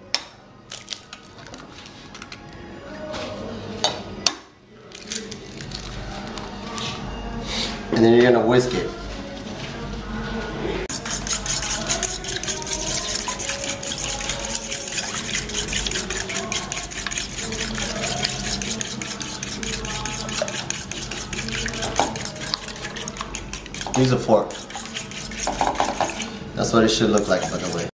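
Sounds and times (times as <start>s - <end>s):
fork clicking against bowl: 10.9s - 26.3s
beaten egg sloshing: 10.9s - 26.4s, 27.1s - 27.9s.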